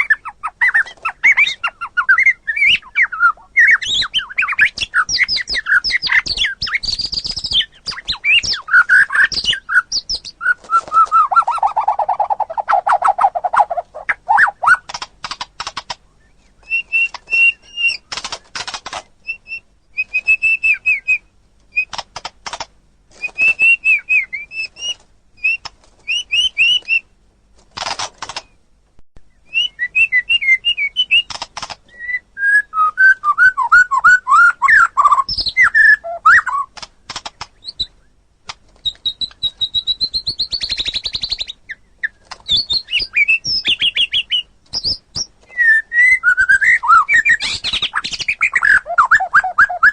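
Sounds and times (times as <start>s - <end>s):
songbird whistles and chattering: 0.0s - 22.1s, 23.2s - 27.1s, 29.2s - 38.1s, 38.8s - 49.9s
falling whistles: 1.3s - 12.7s, 16.2s - 18.1s, 19.3s - 21.2s, 23.2s - 27.0s, 31.9s - 36.7s, 42.5s - 49.9s.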